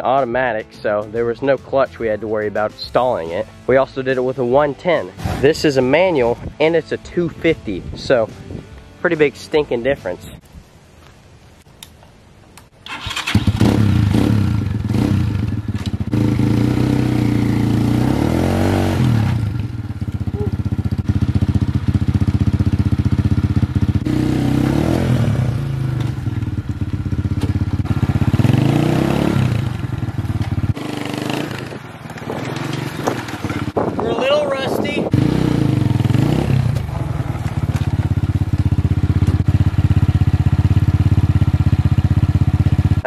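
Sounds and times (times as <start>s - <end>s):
dirt bike engine revving: 12.9s - 43.0s.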